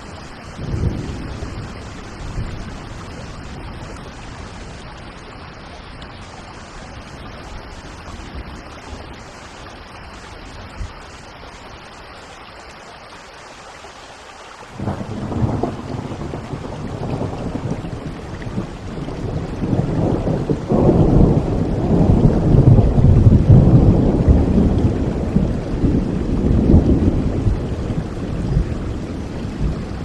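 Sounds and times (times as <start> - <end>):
rain falling: 0.0 - 30.0
rolling thunder: 0.6 - 5.0, 14.8 - 30.0.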